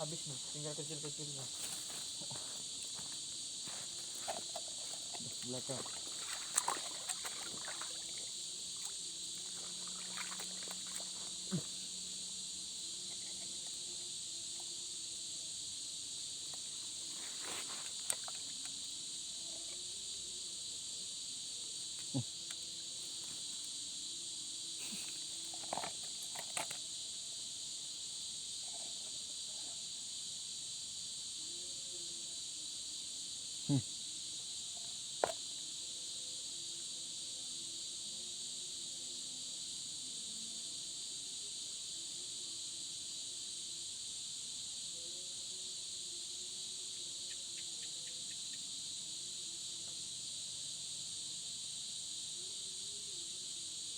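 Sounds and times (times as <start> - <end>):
crickets trilling: 0.0 - 53.9.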